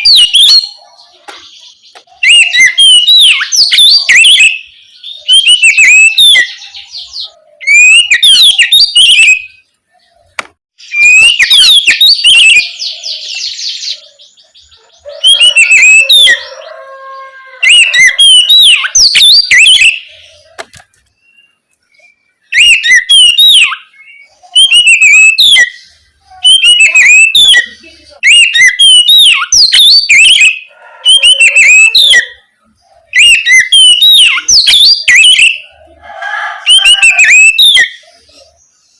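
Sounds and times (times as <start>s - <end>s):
bird singing whistled phrases: 0.0s - 0.9s, 2.2s - 9.6s, 10.8s - 14.1s, 17.6s - 20.2s, 21.2s - 32.4s, 33.1s - 35.7s, 36.7s - 38.1s
buzzy bird trill: 0.0s - 10.2s, 10.8s - 20.6s, 21.2s - 38.9s.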